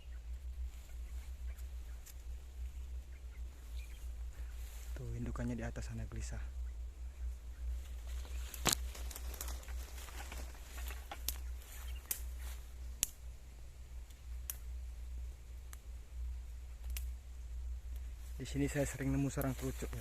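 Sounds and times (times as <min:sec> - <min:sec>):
bird alarm notes: 0:00.0 - 0:12.9
steady low rumble: 0:00.0 - 0:20.0.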